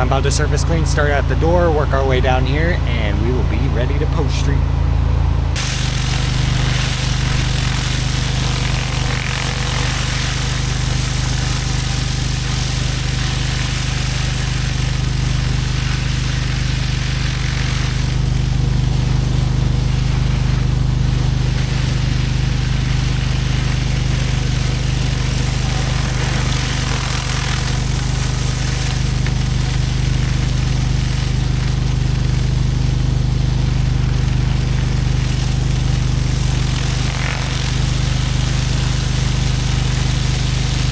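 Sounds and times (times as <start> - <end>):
pressure washer engine running: 0.0 - 40.9
high-pressure water spraying hiss: 5.6 - 40.9.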